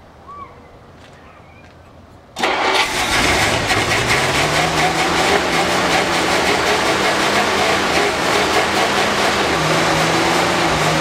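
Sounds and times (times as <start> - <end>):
car engine starting and revving: 2.4 - 11.0.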